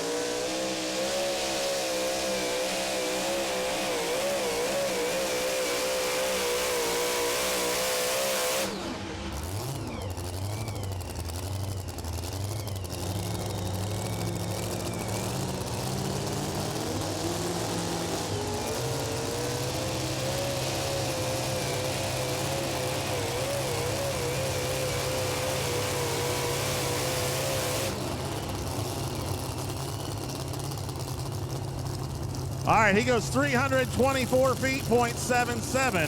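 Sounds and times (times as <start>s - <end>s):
truck engine screaming at high revs: 0.0s - 36.0s.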